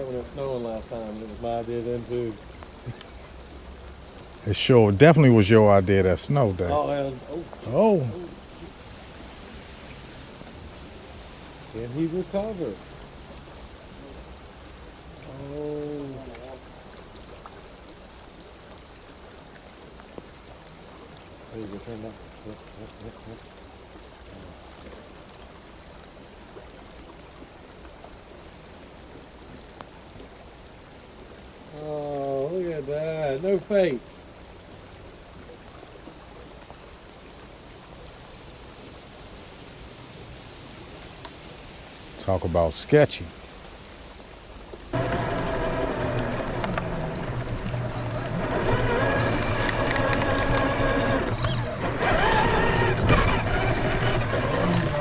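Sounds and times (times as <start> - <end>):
running water: 0.0 - 55.0
toy truck electric motor whining: 45.0 - 55.0.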